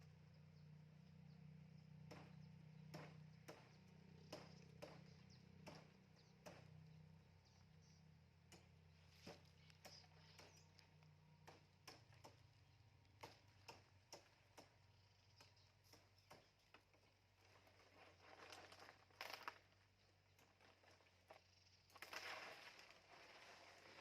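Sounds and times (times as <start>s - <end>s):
low steady hum: 0.0s - 24.0s
faint irregular clicks and taps: 8.4s - 17.1s.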